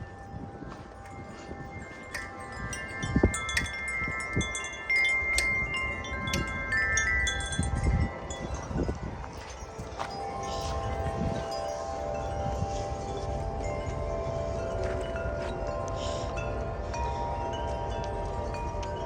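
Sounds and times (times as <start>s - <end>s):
metal tube wind chime ringing: 0.0s - 19.0s
wind rumbling: 0.0s - 19.0s.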